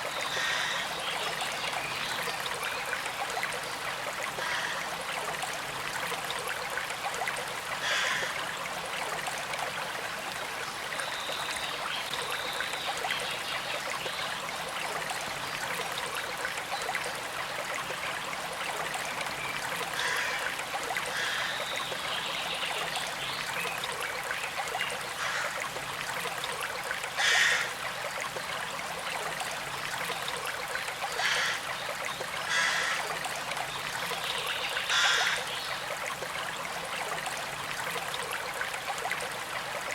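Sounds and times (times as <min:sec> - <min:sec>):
shallow creek flowing: 0:00.0 - 0:39.9.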